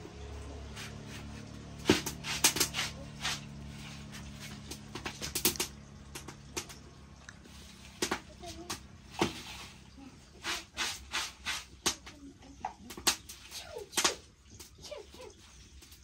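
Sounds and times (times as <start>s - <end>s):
low steady hum: 0.0s - 11.0s
sharp clicks and knocks: 4.6s - 7.0s.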